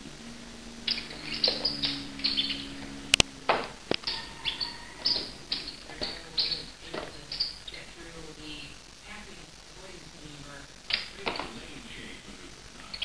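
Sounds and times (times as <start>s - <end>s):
bird chirping: 0.0s - 13.0s
sharp clicks: 0.8s - 7.9s, 10.6s - 11.6s.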